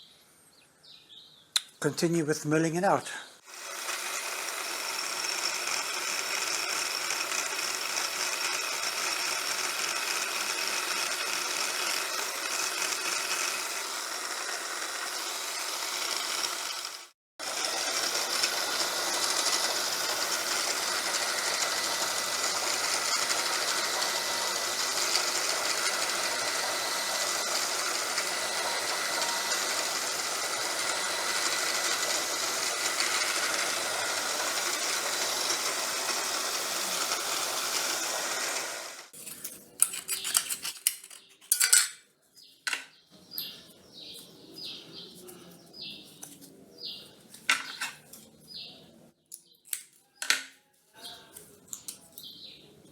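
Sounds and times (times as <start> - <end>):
milling machine cutting metal: 3.5 - 39.1.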